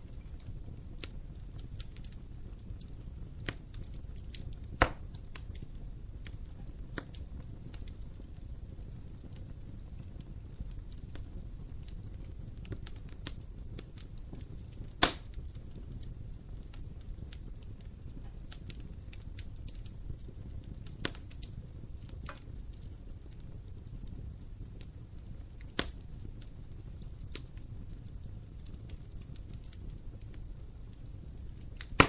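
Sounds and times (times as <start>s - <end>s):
fire crackling: 0.0s - 32.0s
fire flames rumbling: 0.0s - 32.0s
wood fire popping: 0.0s - 32.0s.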